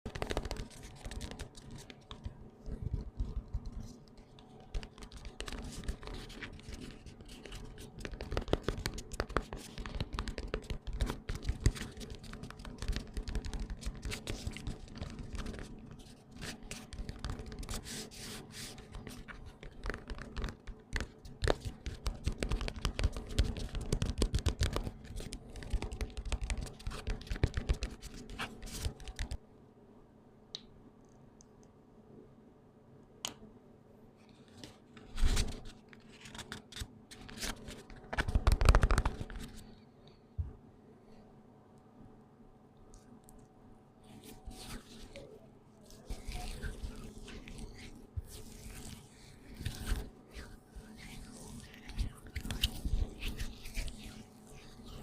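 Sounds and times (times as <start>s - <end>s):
hands rubbing cream: 0.1s - 2.3s, 2.9s - 29.4s, 44.1s - 55.0s.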